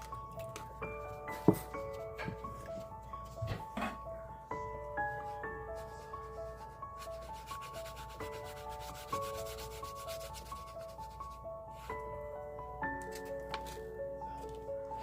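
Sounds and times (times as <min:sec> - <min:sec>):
soft melodic music: 0:00.0 - 0:15.0
rapid rubbing on paper: 0:05.7 - 0:11.4.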